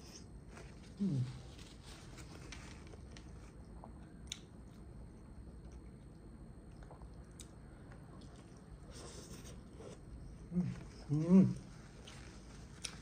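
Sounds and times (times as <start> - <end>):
person chewing: 3.1 - 4.9, 5.6 - 13.0.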